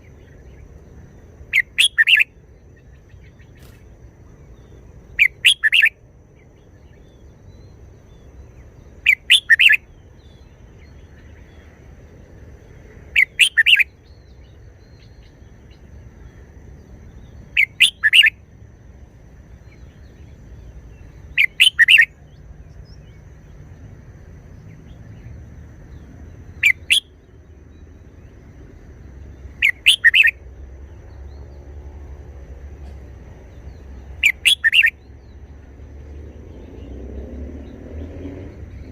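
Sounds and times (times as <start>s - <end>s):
bird singing short phrases: 0.0s - 3.8s, 4.6s - 11.7s, 13.1s - 15.9s, 17.1s - 18.4s, 19.6s - 23.4s, 24.6s - 27.4s, 29.3s - 31.5s, 32.9s - 35.5s.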